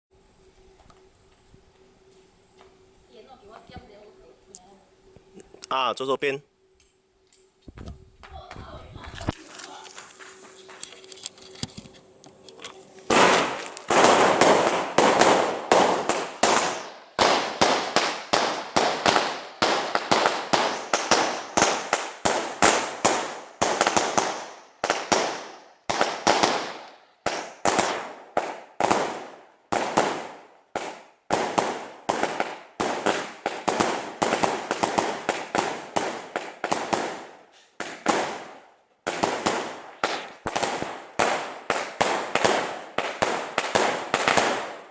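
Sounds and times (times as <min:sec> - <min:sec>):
fireworks bangs: 0:12.9 - 0:44.9.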